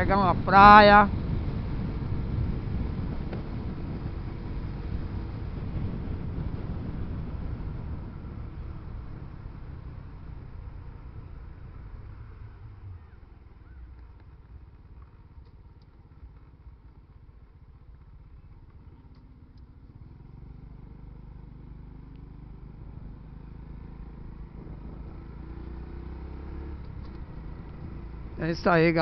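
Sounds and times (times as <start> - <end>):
wind noise: 0.0 - 13.2
motorcycle engine rumble: 0.0 - 29.0
road noise: 0.0 - 29.0.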